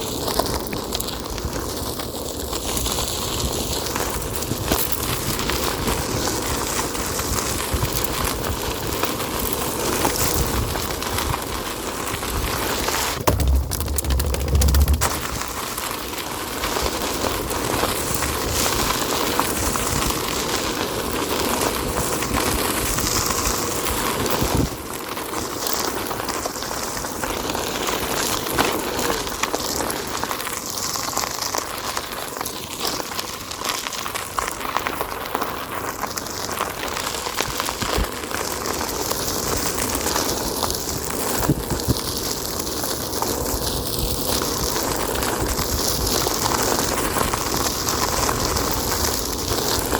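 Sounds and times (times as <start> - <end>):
tyre rolling over dirt trail: 13.2 - 15.4.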